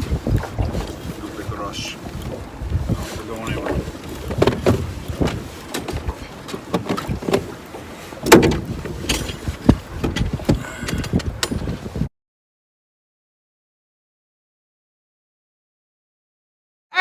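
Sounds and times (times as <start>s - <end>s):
knocks and thumps on boat: 0.0s - 12.1s
wind on microphone: 0.0s - 12.1s.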